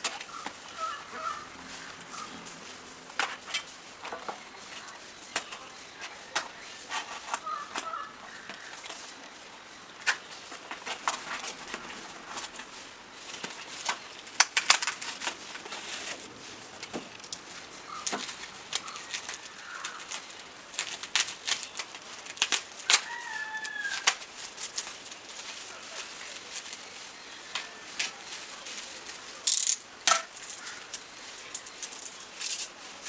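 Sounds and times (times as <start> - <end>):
bird calling: 0.0 - 14.4, 15.1 - 22.1, 30.4 - 32.3.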